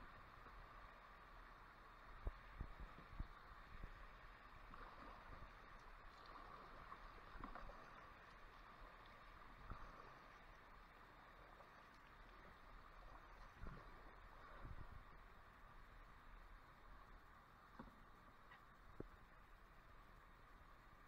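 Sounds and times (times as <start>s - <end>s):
faint water sounds of kayak: 0.0s - 21.0s.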